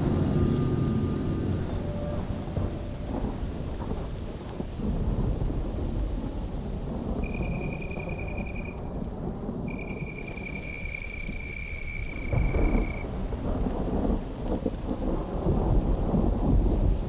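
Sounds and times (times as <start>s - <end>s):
rumbling electronic noise: 0.0s - 5.2s.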